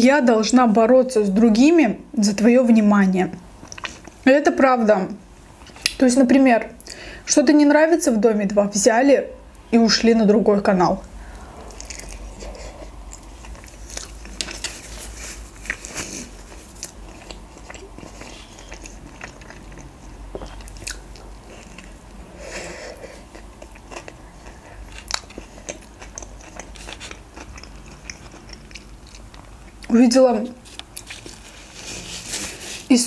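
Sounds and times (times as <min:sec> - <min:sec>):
biting and chewing food: 0:03.6 - 0:04.2, 0:11.2 - 0:22.2, 0:23.1 - 0:30.0, 0:30.6 - 0:32.8.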